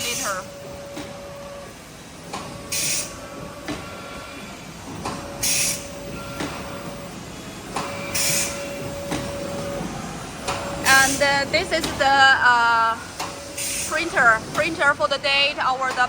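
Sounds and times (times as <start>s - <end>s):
steady machine hum: 0.0s - 16.0s
machine hiss: 2.0s - 11.6s, 13.0s - 14.7s.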